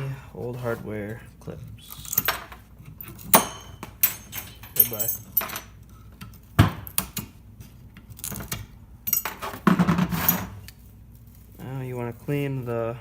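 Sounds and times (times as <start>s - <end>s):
metal parts clinking and rattling: 1.8s - 7.3s, 8.0s - 10.8s
metal clatter: 1.9s - 5.8s.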